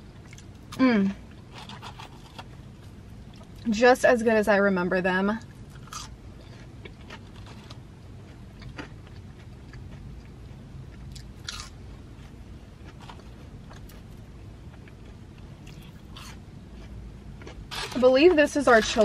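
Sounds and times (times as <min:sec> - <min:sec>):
low hum inside car: 0:00.0 - 0:19.0
person crunching food: 0:00.2 - 0:03.7, 0:05.4 - 0:18.0.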